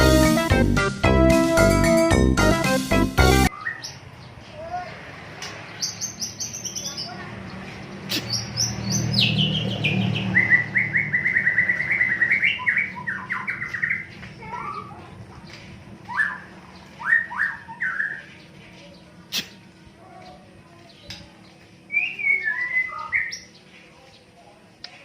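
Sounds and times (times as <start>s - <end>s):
bird singing whistled notes: 8.3s - 14.1s, 16.1s - 18.3s, 21.9s - 23.6s.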